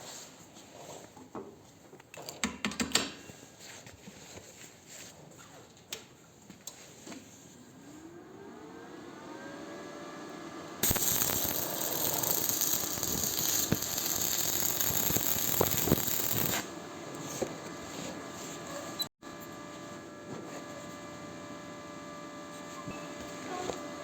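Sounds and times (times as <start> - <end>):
angle grinder grinding metal: 10.8 - 16.7.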